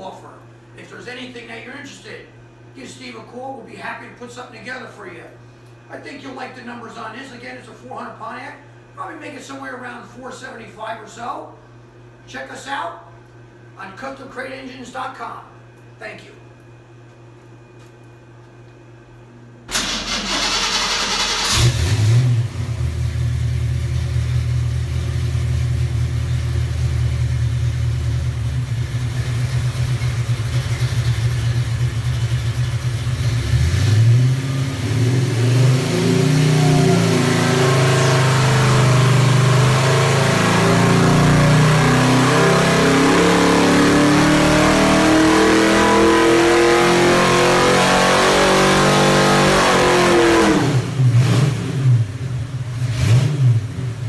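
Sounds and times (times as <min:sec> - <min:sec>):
engine running and revving: 0:21.4 - 0:54.0.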